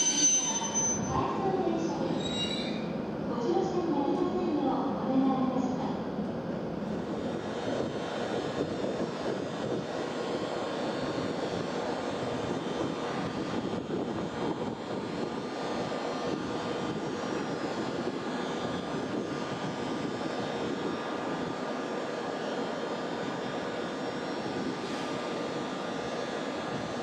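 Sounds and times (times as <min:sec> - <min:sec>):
train rushing hum: 0:00.0 - 0:27.0.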